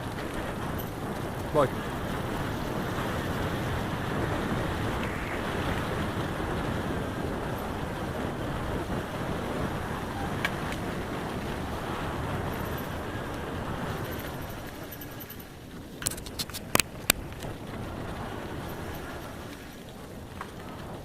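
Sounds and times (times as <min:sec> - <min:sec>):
wind rushing on microphone: 0:00.0 - 0:21.0
sharp click: 0:16.0 - 0:17.5.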